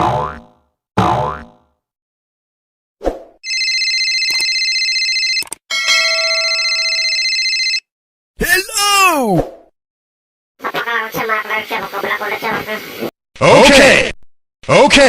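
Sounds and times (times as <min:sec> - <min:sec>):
electronic telephone ringing: 0:03.4 - 0:07.9.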